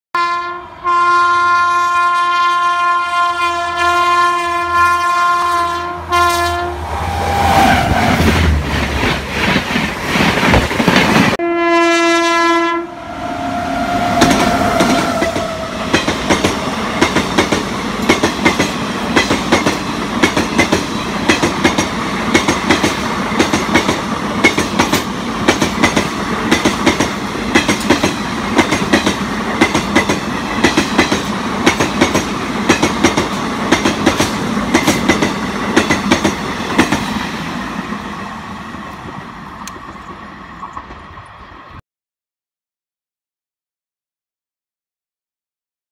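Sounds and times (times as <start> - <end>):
locomotive horn blasts: 0.2 - 7.6, 11.4 - 15.8
train rushing past: 3.1 - 11.4, 12.3 - 41.8.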